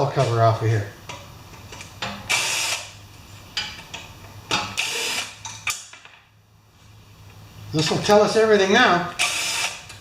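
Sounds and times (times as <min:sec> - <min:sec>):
cordless drill spinning: 0:02.3 - 0:02.9, 0:09.2 - 0:09.9.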